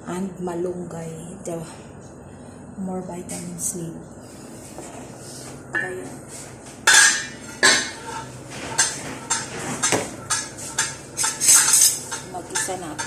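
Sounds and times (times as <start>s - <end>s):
cookware and utensils clattering: 6.9s - 13.0s.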